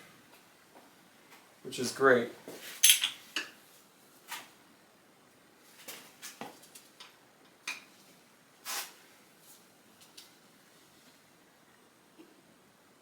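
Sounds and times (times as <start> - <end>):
clinks of metal tools and parts: 2.8 - 3.5.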